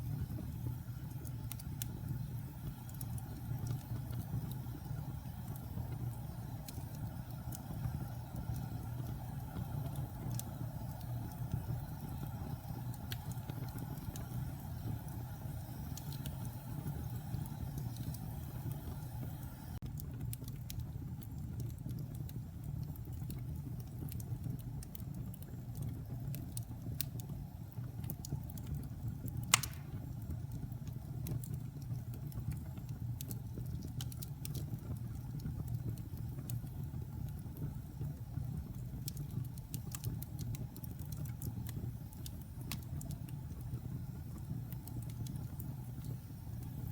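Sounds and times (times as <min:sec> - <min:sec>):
fire crackling: 0:00.0 - 0:46.9
low rumble of fire flames: 0:00.0 - 0:46.9
sharp loud pop of fire: 0:29.5 - 0:30.0.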